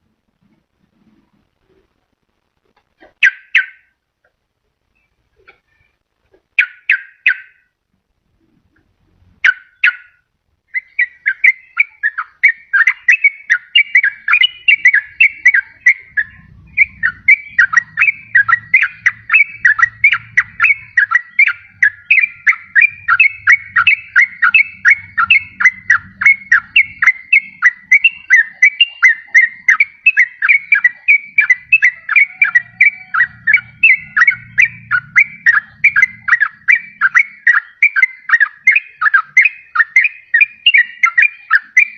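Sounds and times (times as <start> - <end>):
bulbul singing bubbly notes: 10.8 - 41.9.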